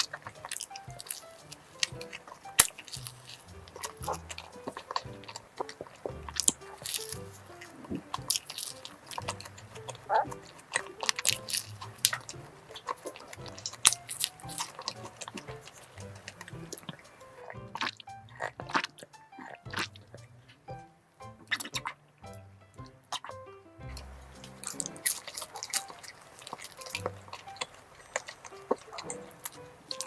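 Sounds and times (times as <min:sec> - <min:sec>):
pastry crackling crunches: 0:00.0 - 0:17.1, 0:24.0 - 0:30.0
chewing crisp pastry: 0:00.0 - 0:20.6, 0:23.9 - 0:30.0
soft background music: 0:00.0 - 0:30.0.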